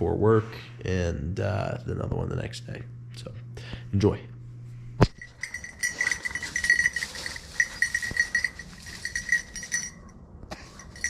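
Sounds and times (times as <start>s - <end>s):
dog collar bell jingling: 5.2s - 11.0s.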